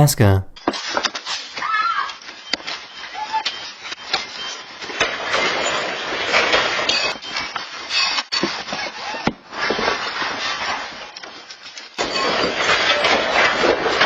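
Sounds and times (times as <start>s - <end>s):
contents rattling in earthquake: 5.0s - 8.2s, 9.5s - 14.0s.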